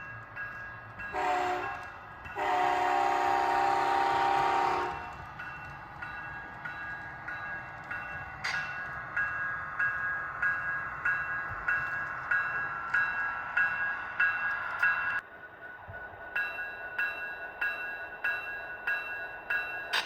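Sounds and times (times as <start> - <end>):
model train horn blasts: 1.2 - 1.8, 2.4 - 5.0.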